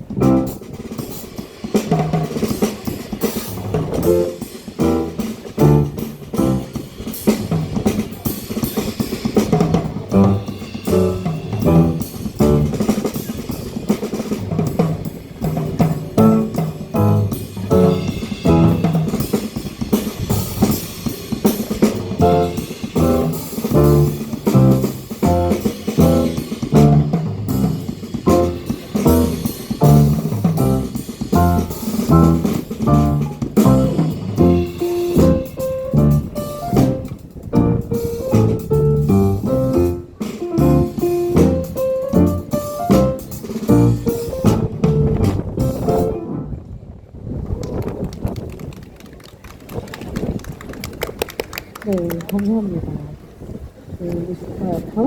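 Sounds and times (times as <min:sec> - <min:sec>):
bass lines: 0:00.0 - 0:00.6, 0:03.7 - 0:06.8, 0:10.1 - 0:12.9, 0:16.1 - 0:19.2, 0:22.2 - 0:46.6
drum kit beat: 0:00.0 - 0:46.5.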